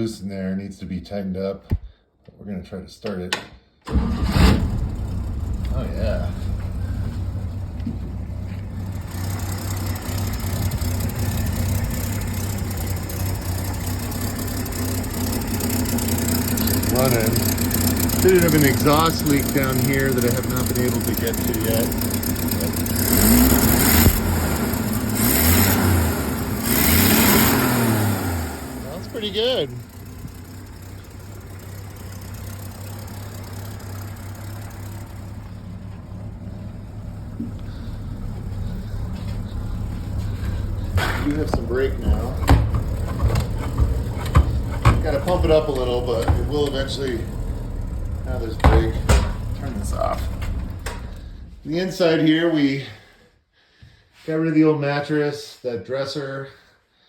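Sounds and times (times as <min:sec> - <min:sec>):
bus engine idling: 0:03.9 - 0:25.3, 0:27.8 - 0:52.1
exhaust leak hiss: 0:04.6 - 0:25.2, 0:27.8 - 0:43.2.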